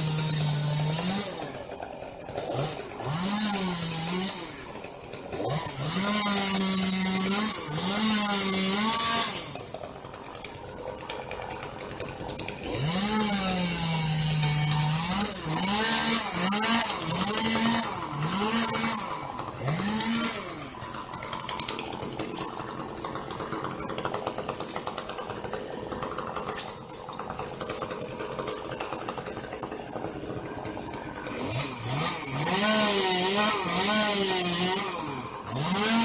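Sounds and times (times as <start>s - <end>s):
chainsaw revving and cutting wood: 0.0s - 36.0s.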